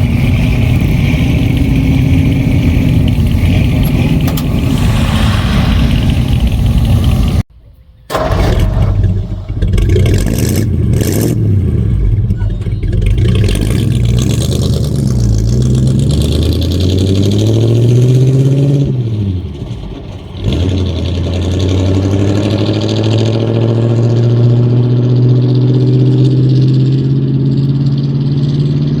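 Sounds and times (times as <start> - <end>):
pickup engine under load: 8.0 - 22.0.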